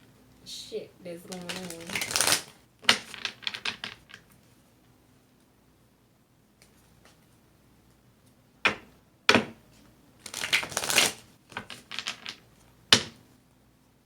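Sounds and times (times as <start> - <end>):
cards being shuffled: 1.2 - 4.2, 10.2 - 12.4.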